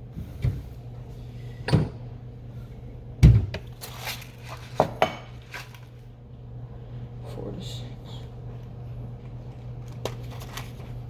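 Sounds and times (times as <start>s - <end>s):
low steady hum: 0.0s - 11.0s
kitchen knocks and bumps: 3.2s - 3.6s.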